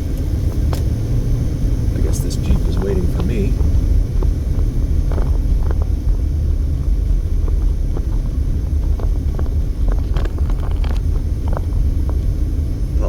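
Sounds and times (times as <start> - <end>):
car road rumble: 0.0 - 13.0
small knocks and rattles: 2.8 - 12.4.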